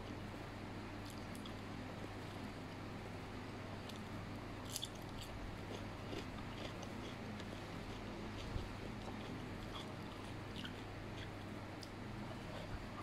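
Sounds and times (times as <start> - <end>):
person chewing noodles: 4.7 - 13.0.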